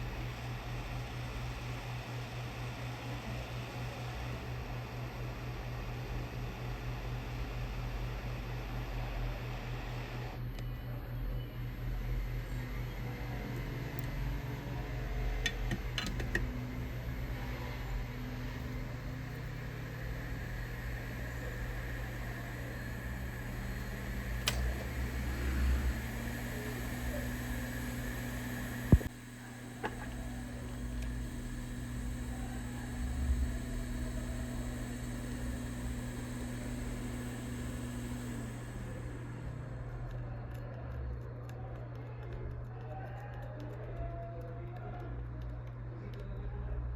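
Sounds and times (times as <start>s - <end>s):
hot air blower hissing: 0.0s - 4.5s, 11.9s - 40.1s
fan-like hum: 0.0s - 46.9s
faint high whine: 6.7s - 40.2s.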